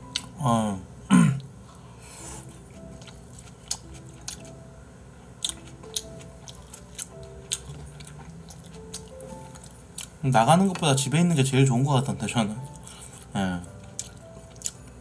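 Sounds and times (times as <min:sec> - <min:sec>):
person chewing: 0:00.0 - 0:00.3, 0:01.4 - 0:04.6, 0:05.3 - 0:10.9, 0:12.6 - 0:15.0
soft piano music: 0:00.0 - 0:01.0, 0:02.2 - 0:15.0.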